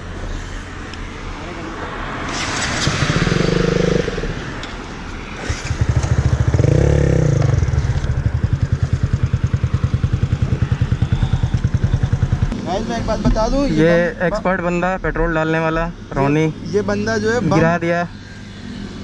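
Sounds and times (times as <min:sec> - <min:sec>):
loud engine revving: 0:02.3 - 0:04.6, 0:05.4 - 0:08.1
motorcycle engine idling: 0:05.8 - 0:12.8.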